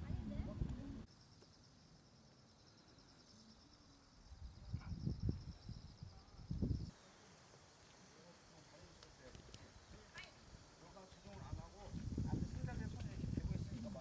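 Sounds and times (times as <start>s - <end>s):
high insect trill: 1.0s - 14.0s
wind buffeting microphone: 4.6s - 6.9s, 11.4s - 14.0s.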